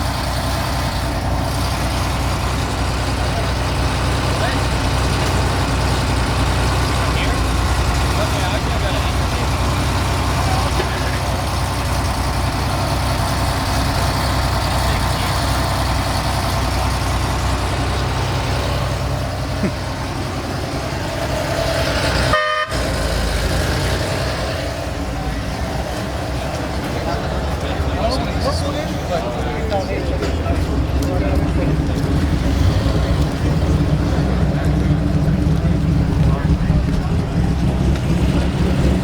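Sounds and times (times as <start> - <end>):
car engines rumbling: 0.0 - 39.0
car horn toot: 22.3 - 22.8.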